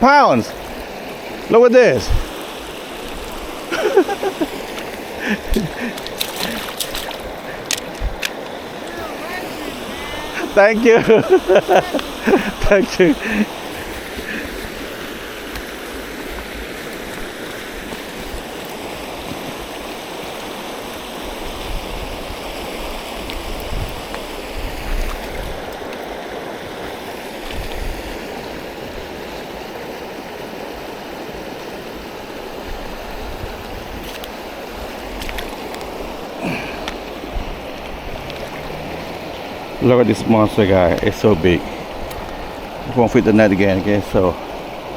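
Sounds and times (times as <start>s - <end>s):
river water rushing: 0.0s - 44.9s
low rumbles: 36.6s - 43.0s.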